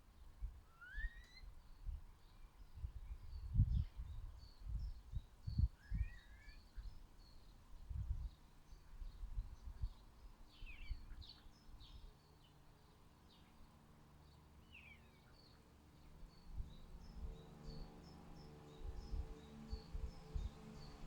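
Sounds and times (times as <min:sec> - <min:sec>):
small birds chirping: 0:03.4 - 0:21.0.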